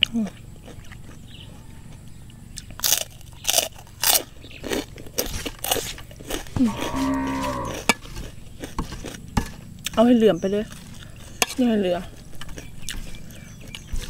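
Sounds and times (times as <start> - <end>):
crunchy chewing: 0.0 - 14.0
person humming mmm: 6.6 - 7.9.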